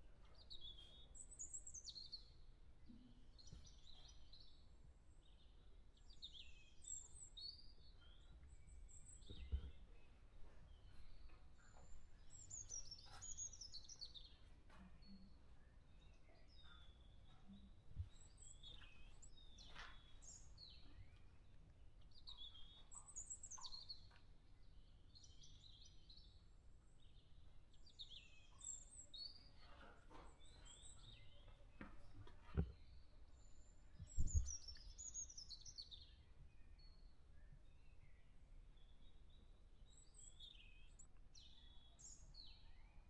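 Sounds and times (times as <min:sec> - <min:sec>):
faint birdsong: 0:00.0 - 0:43.0.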